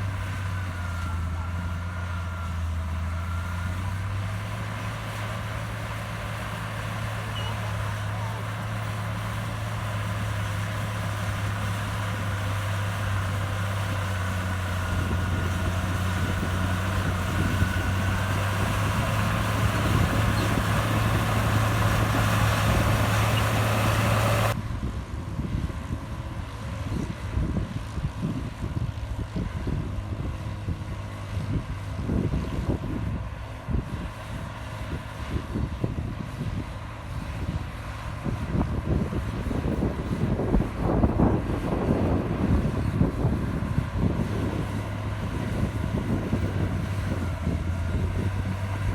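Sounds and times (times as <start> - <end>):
diesel machine engine running: 0.0 - 48.9.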